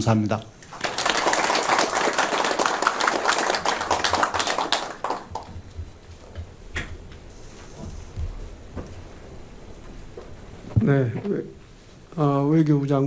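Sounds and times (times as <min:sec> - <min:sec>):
crowd applause: 0:00.6 - 0:05.7.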